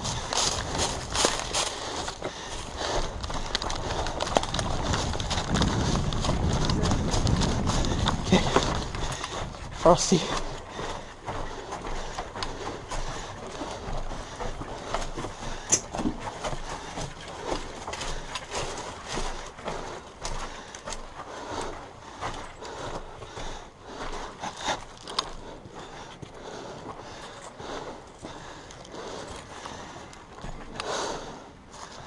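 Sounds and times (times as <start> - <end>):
footsteps through dry leaves: 0.0 - 8.8.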